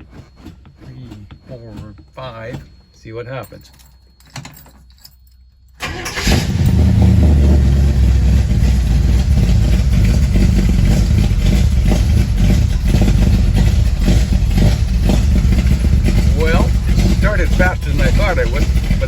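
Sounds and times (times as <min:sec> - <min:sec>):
car engine starting and idling: 0:05.8 - 0:19.0.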